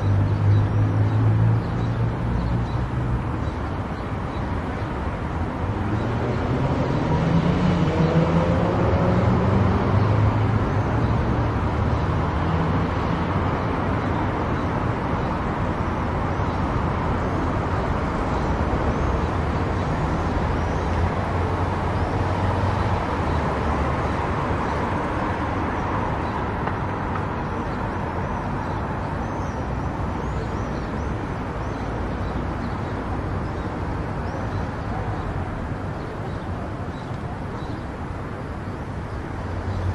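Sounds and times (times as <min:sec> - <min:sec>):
road and tyre noise: 0:00.0 - 0:39.9.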